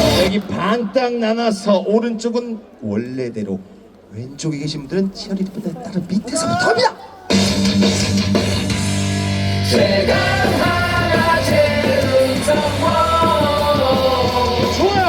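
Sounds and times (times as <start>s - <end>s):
rock song over loudspeakers: 0.0s - 0.6s, 7.2s - 15.0s.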